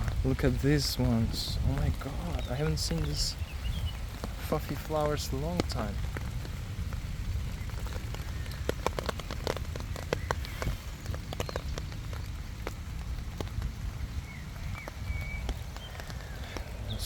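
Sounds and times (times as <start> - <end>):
footsteps crunching on a path: 0.0 - 17.0
wind on the microphone: 0.0 - 17.0.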